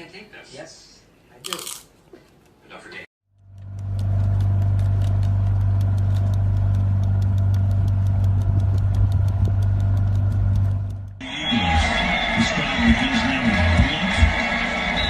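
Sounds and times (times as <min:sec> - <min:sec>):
fast even ticking: 0:03.4 - 0:11.2
motor humming: 0:03.4 - 0:11.2.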